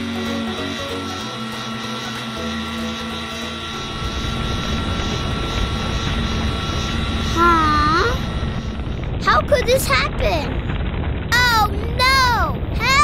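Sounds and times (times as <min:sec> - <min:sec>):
cartoon motor whine: 0:00.0 - 0:13.0
loud low rumble: 0:03.5 - 0:13.0.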